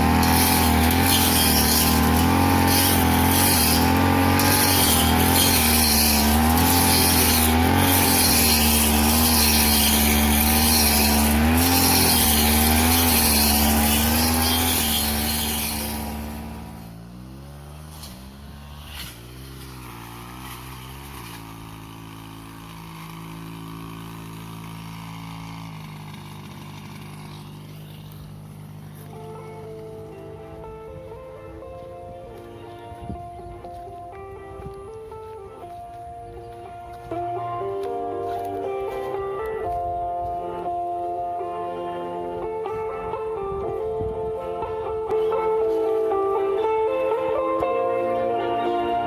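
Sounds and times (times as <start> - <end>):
lawn mower engine running: 0.0 - 33.0.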